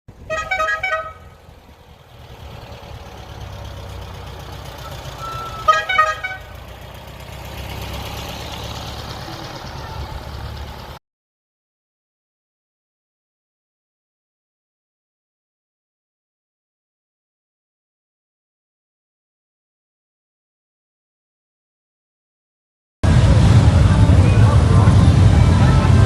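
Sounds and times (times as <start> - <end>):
low engine rumble: 0.1 - 11.0, 23.0 - 26.0
vehicle horn short toots: 0.2 - 1.4, 5.1 - 6.6.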